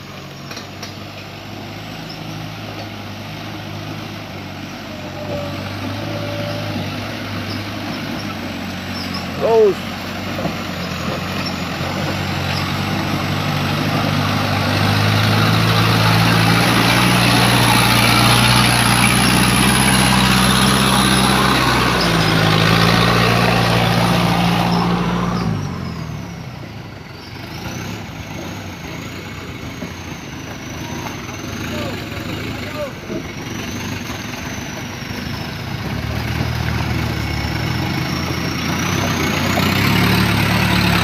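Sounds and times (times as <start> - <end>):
truck engine under load: 0.0 - 41.0.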